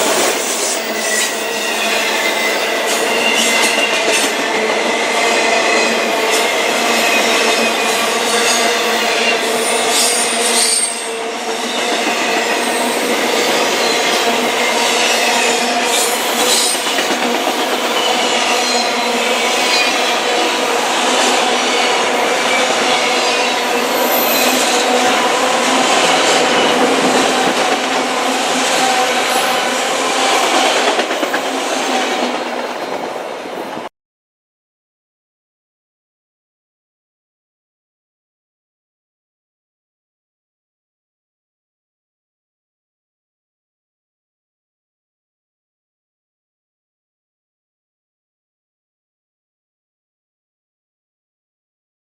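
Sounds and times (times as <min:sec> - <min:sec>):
steel wheels squealing on rails: 0:00.0 - 0:33.5
freight train rolling past: 0:00.0 - 0:33.9
clickety-clack over rail joints: 0:15.9 - 0:18.2, 0:30.3 - 0:33.9.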